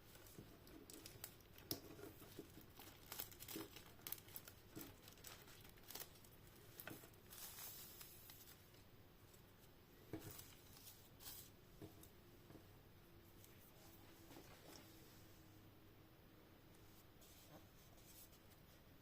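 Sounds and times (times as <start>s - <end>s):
plastic crinkling: 0.0s - 8.8s.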